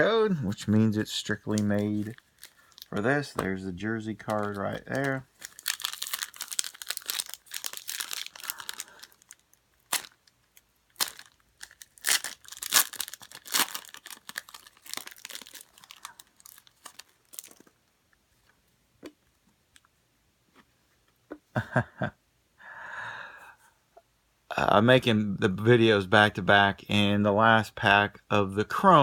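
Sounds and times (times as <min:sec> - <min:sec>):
plastic wrapper tearing and crinkling: 0:01.2 - 0:17.8.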